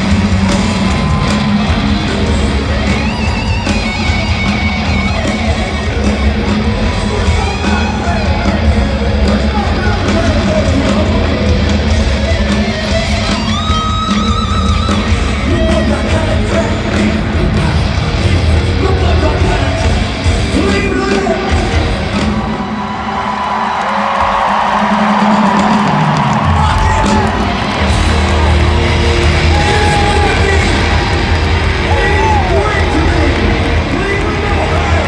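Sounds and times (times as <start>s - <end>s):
distorted electric guitars: 0.0s - 23.0s, 24.3s - 35.0s
drums: 0.0s - 35.0s
shouted rock vocal: 5.1s - 35.0s.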